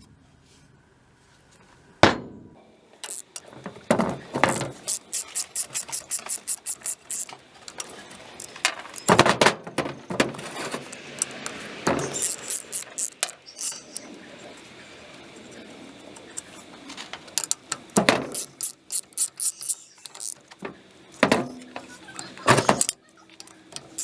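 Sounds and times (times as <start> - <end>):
ratchet wrench clicking: 3.0 - 9.4, 10.8 - 14.1, 17.3 - 24.0.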